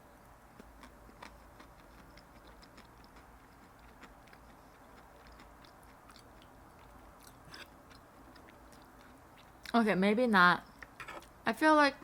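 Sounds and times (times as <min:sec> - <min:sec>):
person chewing: 0:00.6 - 0:09.7.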